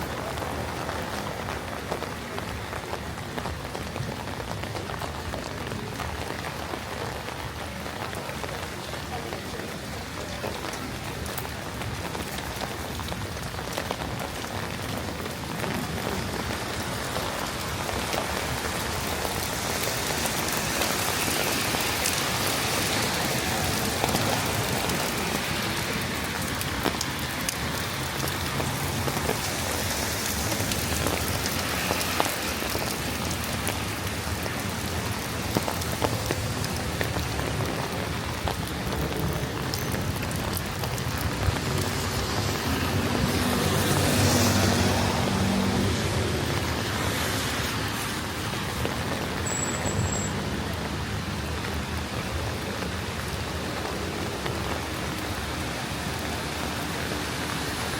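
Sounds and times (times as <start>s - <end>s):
rain pattering: 0.0s - 57.9s.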